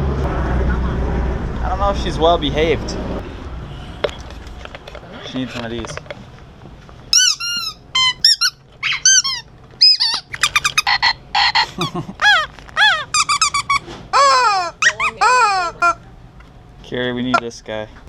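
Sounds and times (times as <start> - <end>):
squeaky dog toy squeaks: 7.1 - 16.0.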